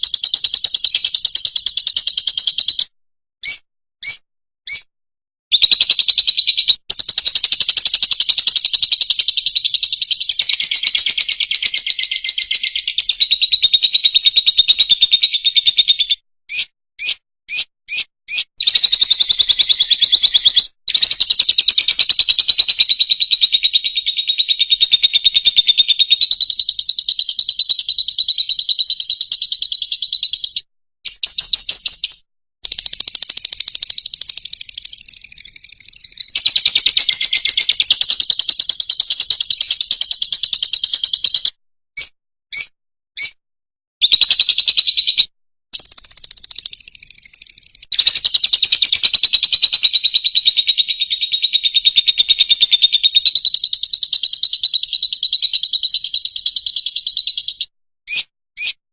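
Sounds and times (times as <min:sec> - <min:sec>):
bird chattering trill: 0:00.0 - 0:04.9, 0:05.5 - 0:43.4, 0:44.0 - 0:58.8
bird chirps: 0:00.0 - 0:04.9, 0:05.5 - 0:43.4, 0:44.0 - 0:58.8.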